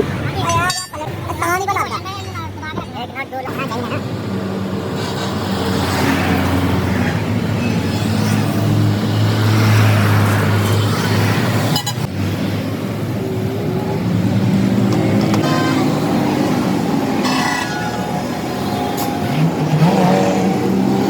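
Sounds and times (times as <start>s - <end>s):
heavy road traffic: 0.0s - 21.0s
car horn: 15.4s - 20.0s.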